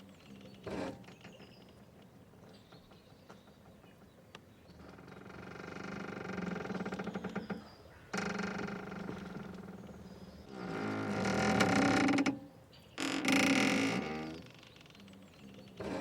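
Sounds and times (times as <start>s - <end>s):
faint clicks: 1.0s - 4.5s
rope creaking under strain: 4.8s - 9.9s, 10.5s - 12.4s, 13.0s - 15.1s, 15.8s - 16.0s.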